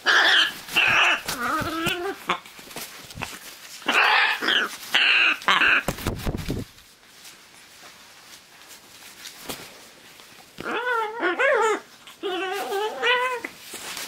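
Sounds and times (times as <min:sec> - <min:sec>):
animal whining calls: 0:00.0 - 0:02.4, 0:03.8 - 0:05.9, 0:10.6 - 0:13.5.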